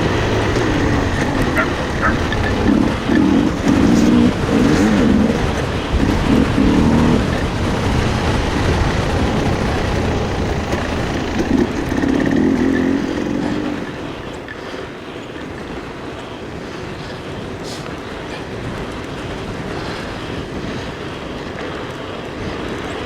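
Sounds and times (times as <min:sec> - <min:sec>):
motor whine: 0:00.0 - 0:15.5
wind and tyres on trail: 0:00.0 - 0:23.0.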